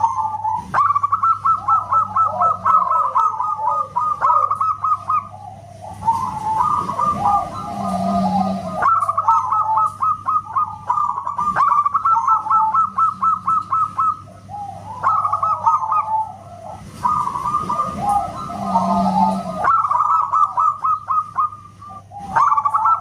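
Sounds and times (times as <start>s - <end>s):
dove cooing and warbling: 0.0s - 23.0s.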